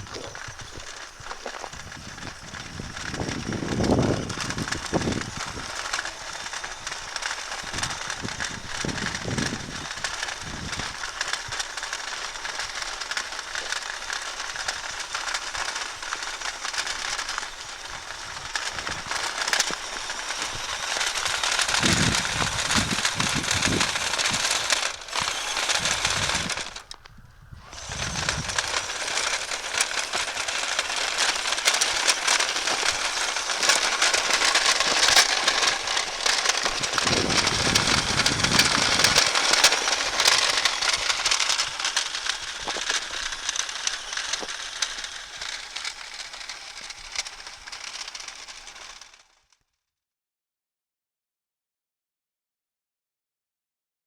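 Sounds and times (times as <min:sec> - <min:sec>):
rc truck tyres crunching through snow: 0:00.0 - 0:49.3
low rumbles: 0:27.6 - 0:43.4.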